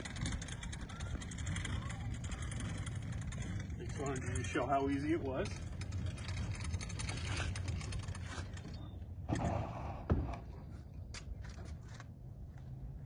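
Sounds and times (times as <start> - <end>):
scraping: 0.0 - 9.5
wheels rattling on pavement: 0.0 - 9.6.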